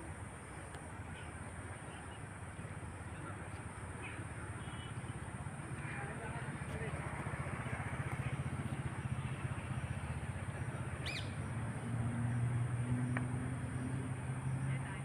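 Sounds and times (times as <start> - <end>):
vehicle traffic rumble: 0.0 - 15.0
bird chirp: 11.0 - 11.5.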